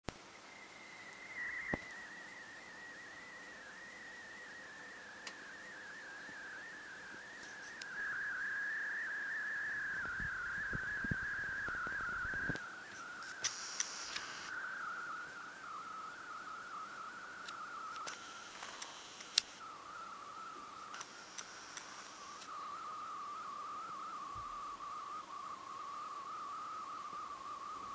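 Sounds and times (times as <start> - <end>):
high wavering whistle: 0.3 - 27.9
faint clicks: 11.6 - 14.5, 17.4 - 19.6, 20.5 - 22.6
short hissy bursts: 13.3 - 14.5.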